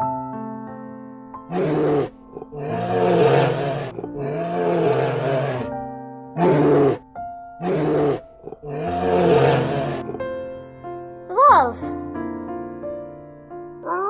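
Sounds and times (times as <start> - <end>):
bear growling: 1.5 - 5.8, 6.4 - 10.3.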